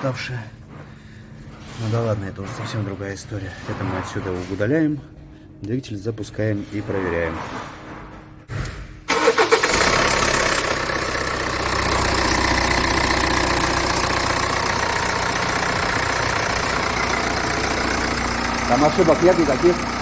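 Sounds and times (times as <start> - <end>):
car engine starting and idling: 9.0 - 20.0.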